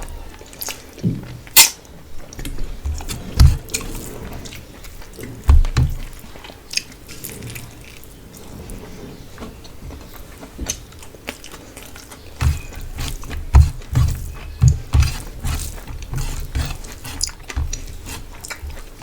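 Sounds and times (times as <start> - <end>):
person chewing food: 2.2 - 8.0, 10.2 - 19.0.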